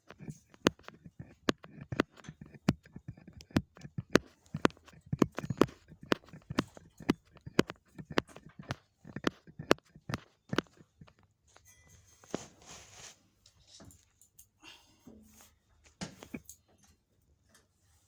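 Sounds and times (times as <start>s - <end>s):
sharp knocks and clicks: 0.0s - 11.3s.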